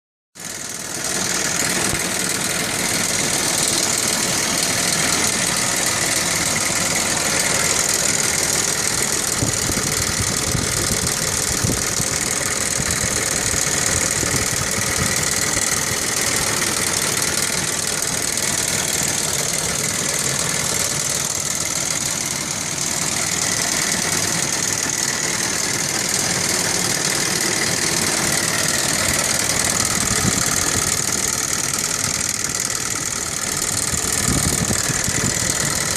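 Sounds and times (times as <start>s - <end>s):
car engine idling: 0.4s - 35.9s.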